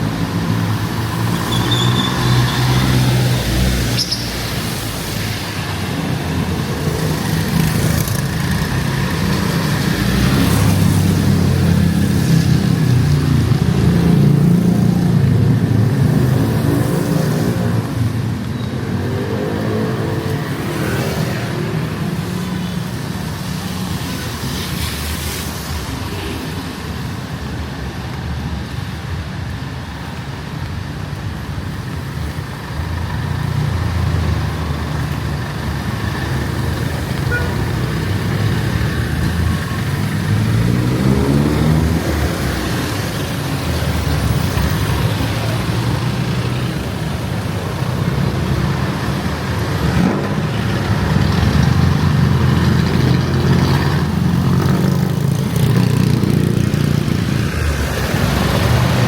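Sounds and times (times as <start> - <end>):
vehicle engines running: 0.0 - 59.0
engine speeding up: 39.4 - 42.8.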